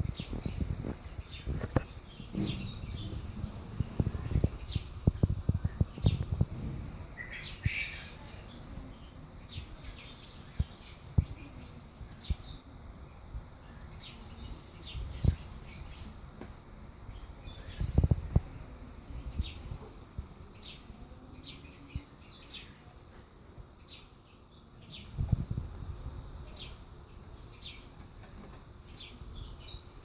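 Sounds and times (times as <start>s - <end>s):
bird chick chirping: 0.0s - 8.8s.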